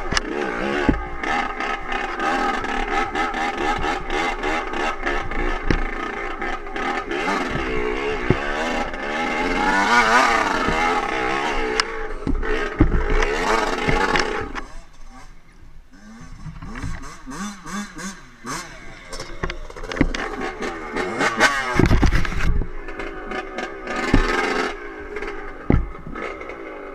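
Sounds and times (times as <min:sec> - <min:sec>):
dirt bike engine revving: 0:00.0 - 0:26.9
clicks and clatter: 0:19.0 - 0:26.8.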